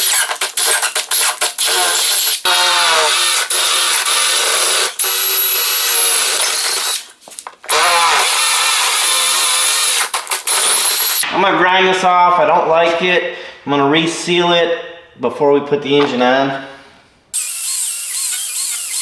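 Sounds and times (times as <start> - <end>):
electric drill boring: 0.0 - 7.1, 7.7 - 11.2, 17.4 - 19.0.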